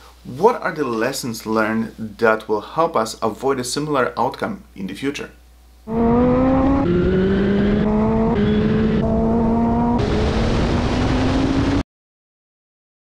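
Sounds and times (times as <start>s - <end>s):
car engine accelerating: 5.9s - 11.8s.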